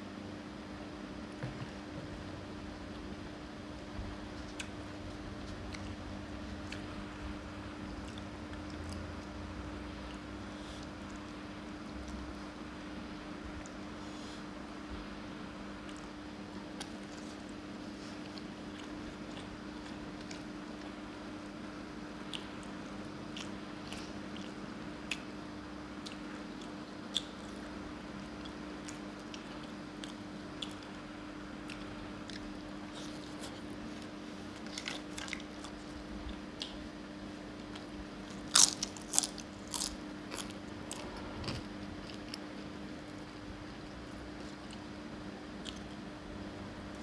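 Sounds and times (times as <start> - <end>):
wet mouth clicks chewing: 22.3 - 25.3, 26.0 - 27.6, 28.3 - 31.0.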